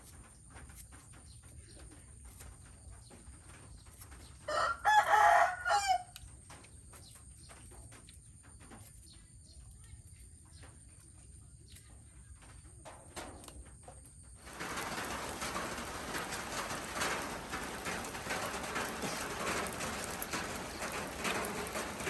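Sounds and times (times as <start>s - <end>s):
rooster crowing: 4.5s - 6.2s
faint scattered clicks: 14.4s - 22.0s.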